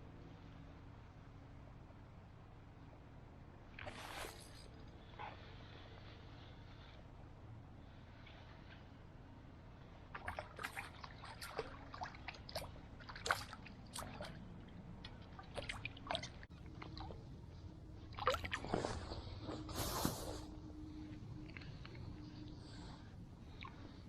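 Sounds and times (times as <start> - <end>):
creek water splashing: 10.1 - 17.3.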